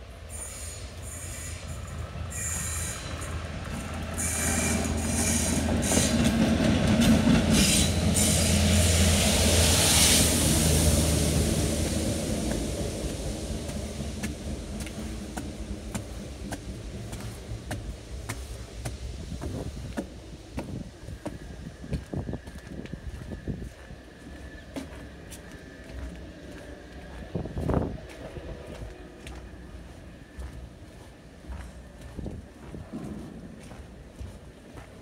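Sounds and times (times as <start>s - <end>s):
train passing: 0.0s - 35.0s.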